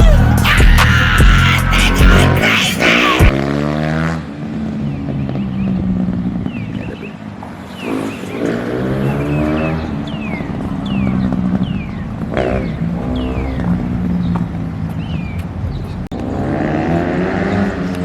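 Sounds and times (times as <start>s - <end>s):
dirt bike engine revving: 0.0s - 14.2s, 16.1s - 18.0s.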